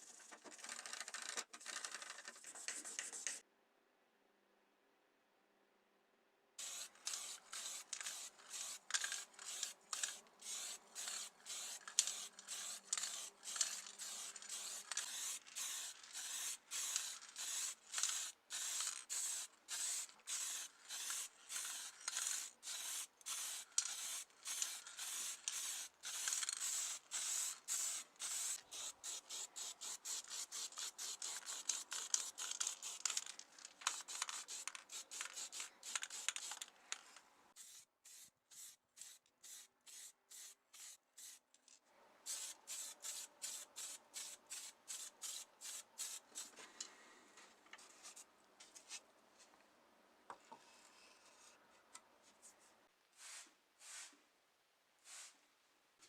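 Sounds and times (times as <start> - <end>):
rapid rubbing strokes: 6.6 - 36.6.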